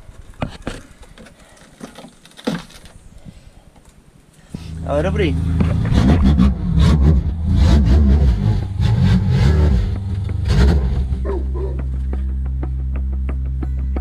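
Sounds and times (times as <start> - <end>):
car engine revving loudly: 4.6 - 11.6
music with ticking beat: 8.9 - 14.0.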